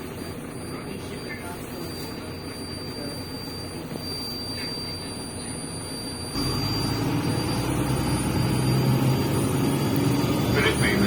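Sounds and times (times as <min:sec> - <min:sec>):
bus engine hum: 0:06.4 - 0:11.0
road noise: 0:06.4 - 0:11.0.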